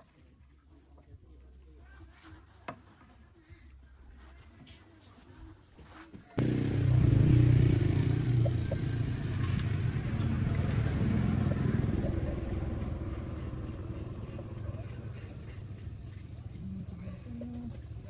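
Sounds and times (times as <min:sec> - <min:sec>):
tractor engine rumbling: 0:06.4 - 0:18.0.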